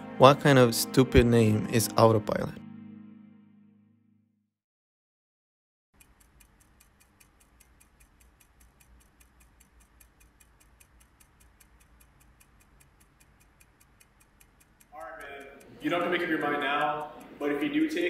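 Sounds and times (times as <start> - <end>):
clock ticking quickly: 6.0 - 18.0.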